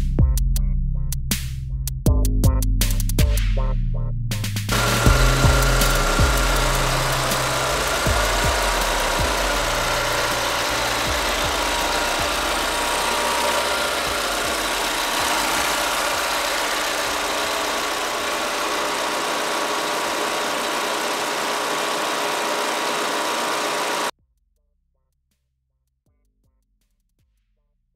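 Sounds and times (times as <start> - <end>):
car engine idling: 4.7 - 24.1.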